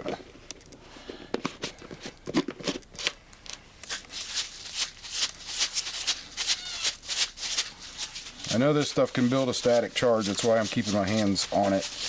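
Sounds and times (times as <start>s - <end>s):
powder rattling in shaken container: 3.8s - 12.0s.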